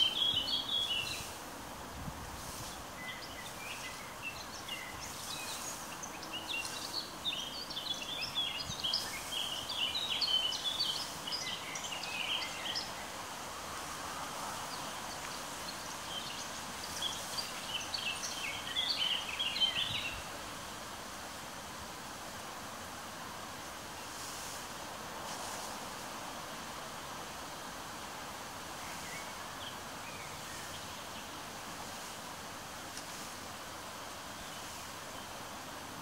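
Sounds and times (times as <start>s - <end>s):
songbird chirping: 0.0s - 1.4s, 2.7s - 20.4s
outdoor hiss: 0.0s - 36.0s.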